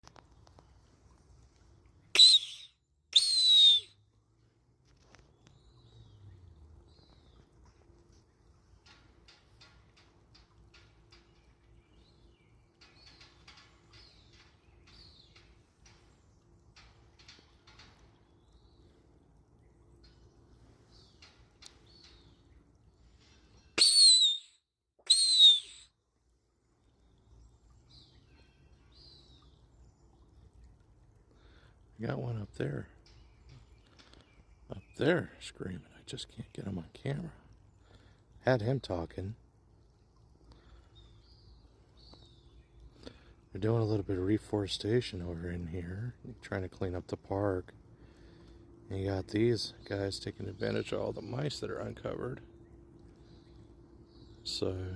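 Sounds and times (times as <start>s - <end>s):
faint high bird calls: 2.1s - 3.9s, 23.1s - 25.9s
descending hawk-like screams: 2.2s - 3.9s, 23.8s - 24.5s, 25.1s - 25.8s.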